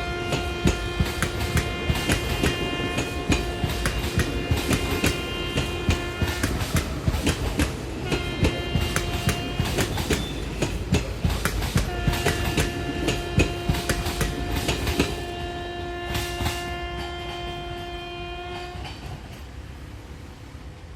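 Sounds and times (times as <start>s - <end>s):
locomotive horn: 0.0s - 19.0s
train wheels clattering: 0.0s - 19.6s.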